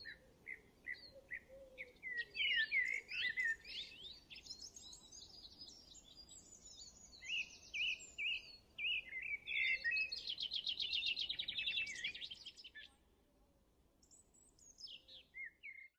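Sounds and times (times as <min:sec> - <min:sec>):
songbirds singing: 0:00.0 - 0:13.1, 0:14.0 - 0:15.9.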